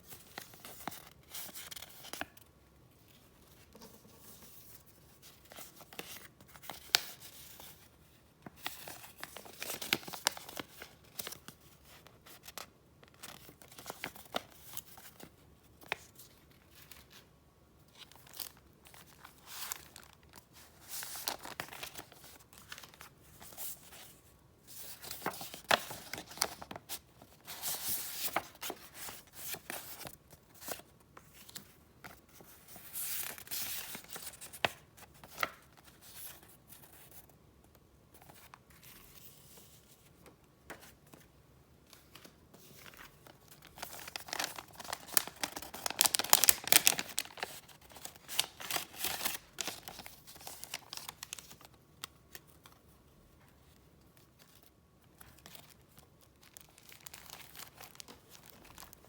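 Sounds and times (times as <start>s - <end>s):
paper rustling and crinkling: 0.0s - 17.3s, 17.9s - 37.3s, 41.9s - 52.9s, 53.5s - 59.0s.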